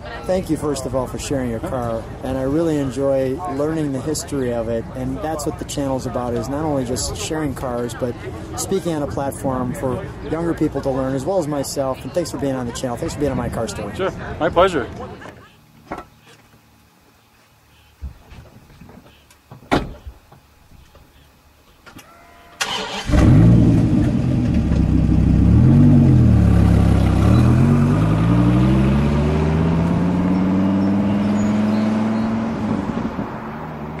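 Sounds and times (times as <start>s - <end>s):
car accelerating away: 22.6s - 34.0s
car engine revving: 22.6s - 34.0s.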